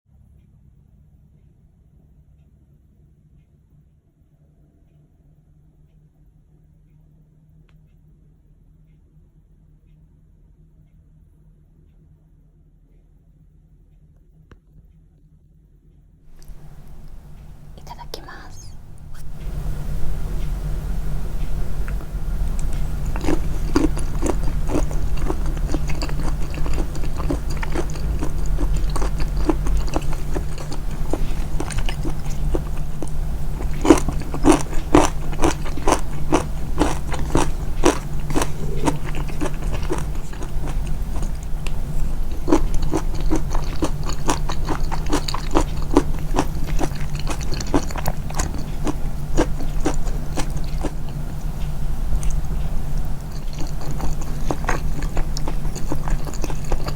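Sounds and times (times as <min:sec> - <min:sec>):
chewing with wet mouth clicks: 0:16.3 - 0:56.9
steady low hum: 0:16.3 - 0:56.9.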